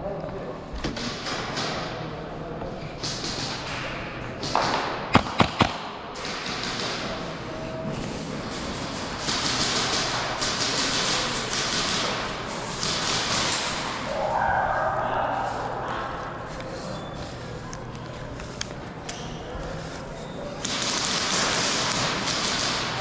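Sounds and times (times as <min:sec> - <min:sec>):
airsoft gun shots: 0:04.4 - 0:07.2, 0:20.6 - 0:23.0
footsteps: 0:15.2 - 0:21.0.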